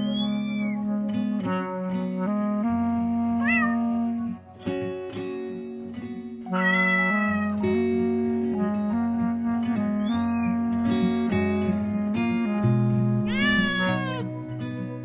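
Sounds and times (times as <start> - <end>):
cat meowing: 0.0 - 0.9, 3.4 - 4.0, 6.5 - 7.7, 10.0 - 10.6, 13.3 - 14.3
plucked guitar music: 0.0 - 15.0.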